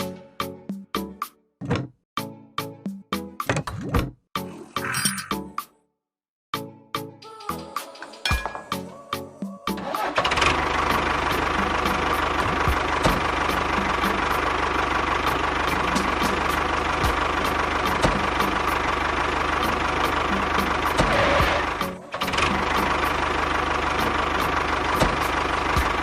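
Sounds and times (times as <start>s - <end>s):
small engine running: 9.8s - 26.0s.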